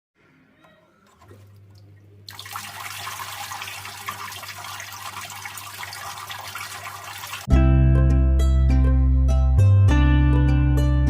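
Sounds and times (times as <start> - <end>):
water splashing and trickling: 1.1 - 7.5
fountain pump humming: 2.3 - 7.5.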